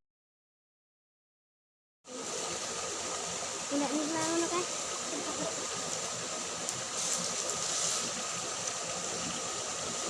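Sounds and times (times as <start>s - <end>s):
brighter hiss: 2.1s - 10.0s
water rushing along a ditch: 2.1s - 10.0s.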